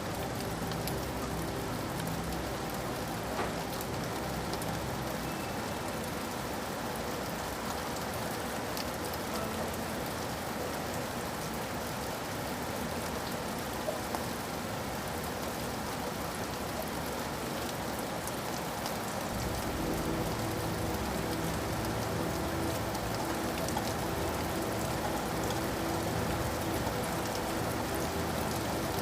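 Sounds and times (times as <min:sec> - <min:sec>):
steady rain hiss: 0:00.0 - 0:29.0
sharp raindrop ticks: 0:00.1 - 0:06.3, 0:17.7 - 0:29.0.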